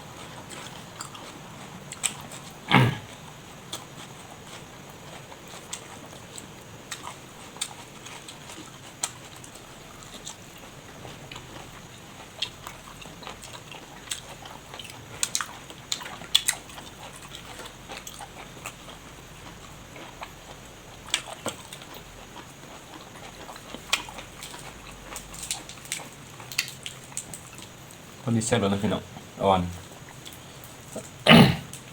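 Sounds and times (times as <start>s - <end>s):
person chewing wetly: 0.1s - 27.7s.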